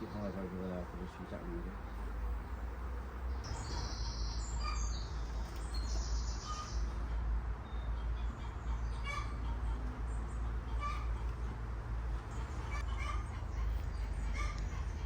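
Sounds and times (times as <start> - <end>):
birds trilling and chirping: 0.0 - 15.0.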